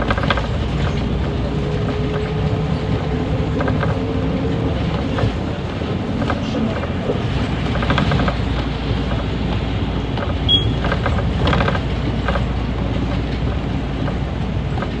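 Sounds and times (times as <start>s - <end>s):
bus engine and road rumble: 0.0s - 15.0s
rattling: 0.0s - 15.0s
high beep: 10.5s - 10.8s.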